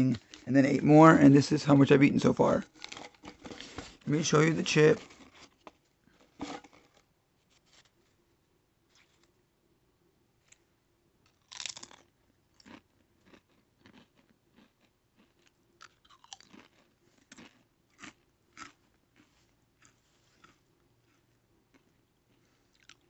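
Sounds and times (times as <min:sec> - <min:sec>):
crunching potato chip: 0:02.6 - 0:07.1, 0:11.2 - 0:23.0.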